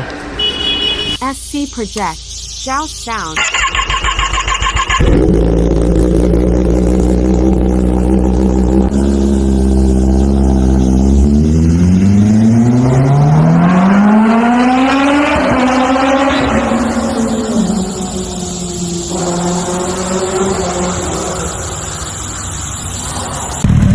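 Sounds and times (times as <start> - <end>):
motorcycle engine running: 3.4 - 23.9.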